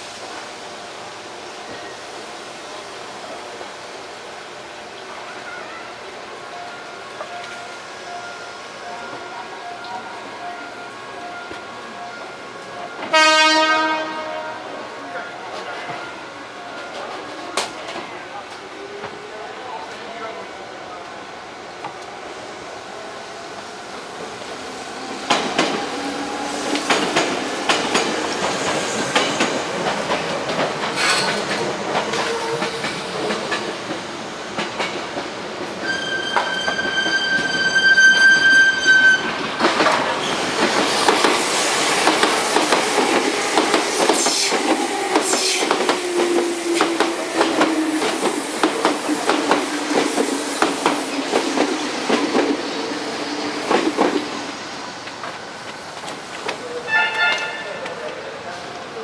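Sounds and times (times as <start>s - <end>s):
train horn: 13.1s - 14.8s, 56.9s - 57.9s
train wheels clacking over rail joints: 26.7s - 34.0s, 39.4s - 52.6s.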